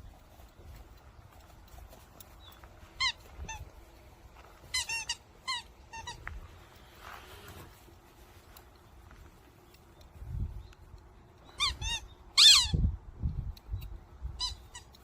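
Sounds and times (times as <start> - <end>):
squeaky toy ball squeaking: 4.7 - 6.2, 11.6 - 12.8, 14.4 - 15.0.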